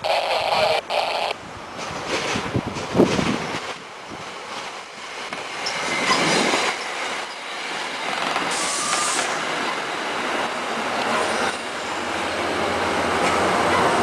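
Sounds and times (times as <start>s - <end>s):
train wheels on rails: 1.6s - 14.0s
short high hiss: 8.5s - 9.4s.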